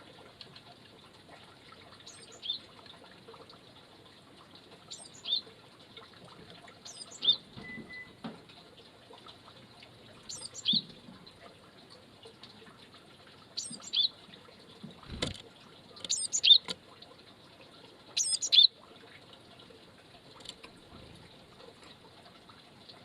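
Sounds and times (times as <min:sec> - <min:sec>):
songbird short high chirps: 0:04.9 - 0:05.4, 0:06.8 - 0:08.2, 0:10.3 - 0:10.9, 0:13.6 - 0:14.1, 0:16.1 - 0:16.6, 0:18.2 - 0:18.7.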